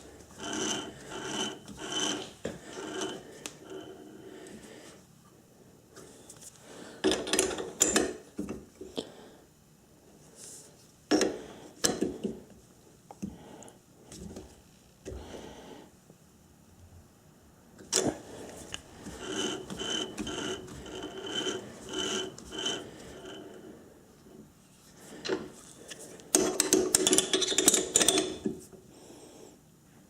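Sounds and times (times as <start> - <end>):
rubbing and scraping: 0.0 - 4.0, 18.1 - 23.8.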